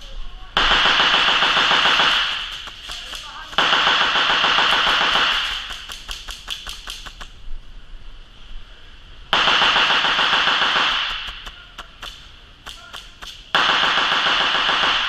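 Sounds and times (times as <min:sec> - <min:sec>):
airsoft gun firing bursts: 0:00.6 - 0:07.3, 0:09.4 - 0:15.0
faint clicks of shots: 0:00.6 - 0:07.4, 0:09.7 - 0:15.0.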